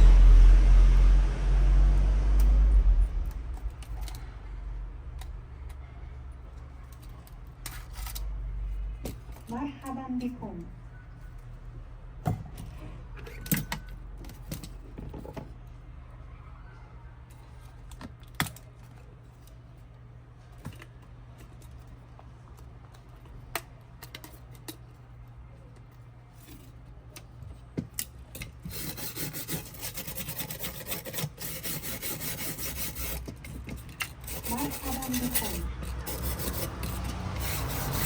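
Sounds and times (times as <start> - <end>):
steady low hum: 0.0 - 15.0
continuous scraping rub: 28.6 - 38.0
small tools clicking and tapping: 33.0 - 38.0.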